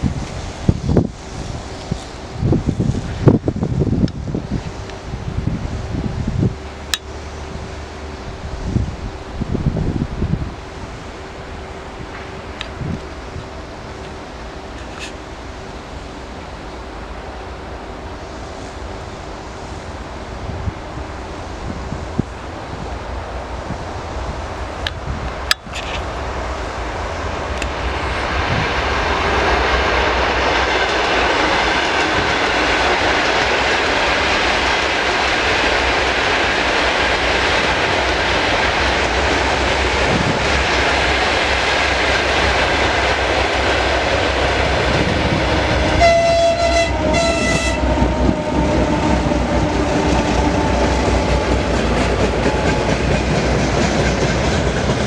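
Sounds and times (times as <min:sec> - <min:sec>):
locomotive engines rumbling: 0:00.0 - 0:55.0
train horn blasts: 0:45.8 - 0:50.9
wagons clickety-clack: 0:50.1 - 0:55.0.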